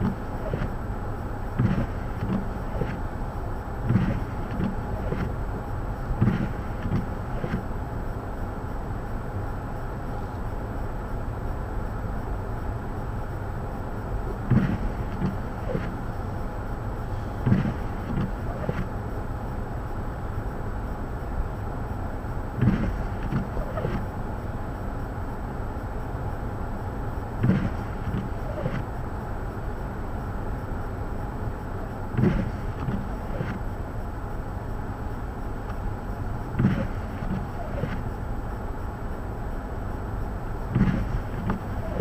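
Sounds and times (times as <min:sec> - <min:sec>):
gusty thumps: 0:01.5 - 0:05.5, 0:06.1 - 0:07.7, 0:14.3 - 0:16.1, 0:17.4 - 0:18.9, 0:22.5 - 0:24.1, 0:27.4 - 0:28.9, 0:32.1 - 0:33.6, 0:36.5 - 0:38.1, 0:40.6 - 0:42.0.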